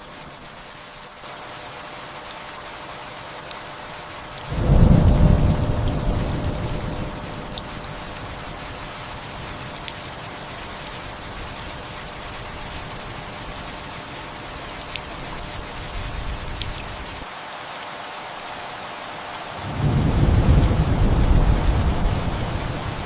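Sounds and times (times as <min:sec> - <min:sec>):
steady rain hiss: 0:00.0 - 0:23.0
raindrops ticking: 0:03.4 - 0:17.2
distant thunder rumble: 0:04.5 - 0:08.8, 0:19.7 - 0:23.0.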